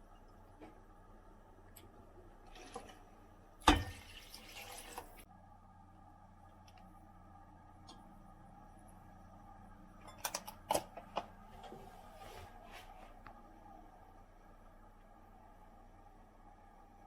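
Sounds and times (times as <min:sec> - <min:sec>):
water running: 0:02.4 - 0:05.2.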